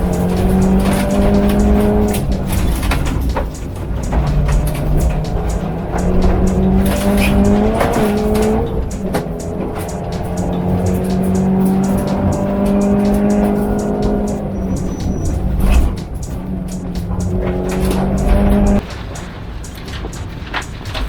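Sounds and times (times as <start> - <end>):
rally car engine at high revs: 0.0 - 18.8
gravel striking car: 0.0 - 21.0.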